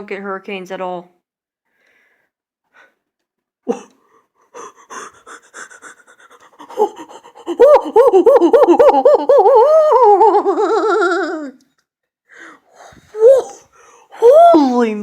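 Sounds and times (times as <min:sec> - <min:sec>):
person panting: 0:04.0 - 0:08.4, 0:12.3 - 0:14.2
high-pitched laughter: 0:04.9 - 0:11.6.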